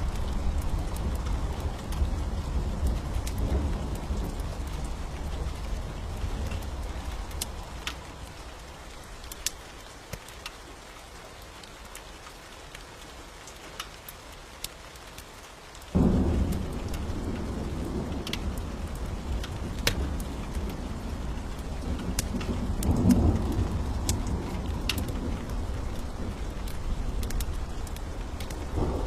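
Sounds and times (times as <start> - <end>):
rolling thunder rumble: 0.0 - 8.4, 16.0 - 29.0
steady rain: 0.0 - 29.0.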